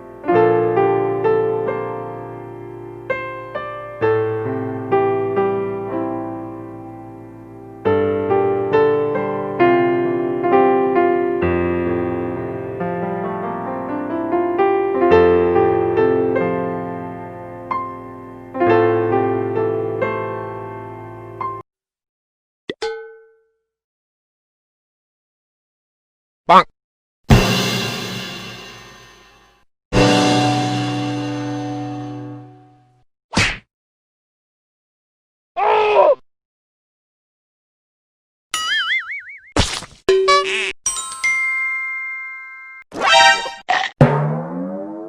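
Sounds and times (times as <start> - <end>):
piano chords: 0.0 - 21.6, 30.0 - 32.8, 43.2 - 45.0
whack sound effect: 33.3 - 33.7, 43.0 - 45.0.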